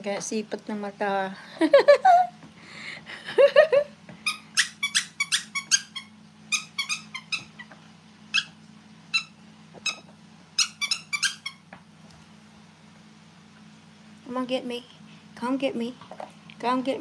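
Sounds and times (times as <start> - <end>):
squeaky dog toy squeaking: 4.2 - 7.7, 8.3 - 11.6.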